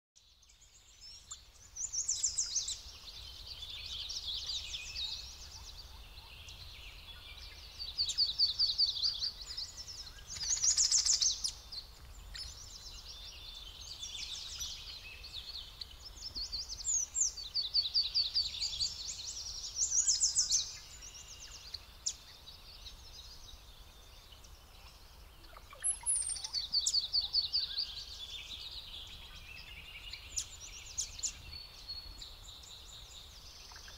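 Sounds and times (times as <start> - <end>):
songbirds singing trills: 0.2 - 33.9.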